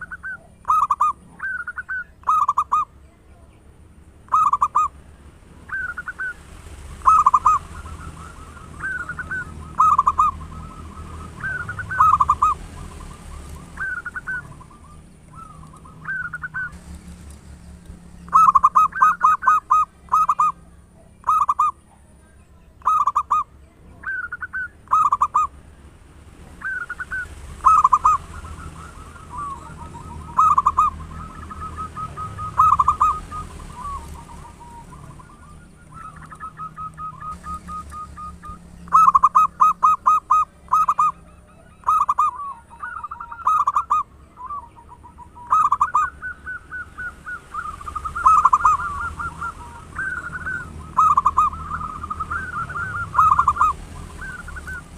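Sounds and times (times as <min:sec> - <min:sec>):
dove cooing: 0:00.0 - 0:03.4, 0:04.2 - 0:17.3, 0:18.0 - 0:25.6, 0:26.5 - 0:54.9.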